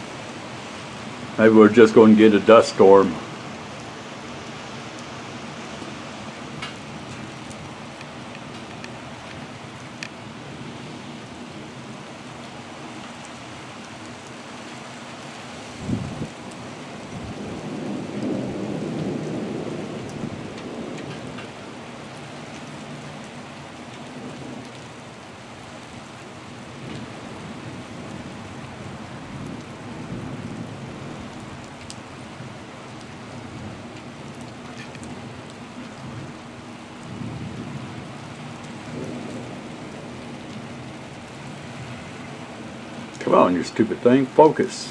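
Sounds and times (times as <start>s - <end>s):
thunder rumbling: 0.0s - 7.9s, 15.7s - 21.8s, 26.8s - 32.6s, 37.0s - 44.9s
wind and rain rushing: 0.0s - 44.9s.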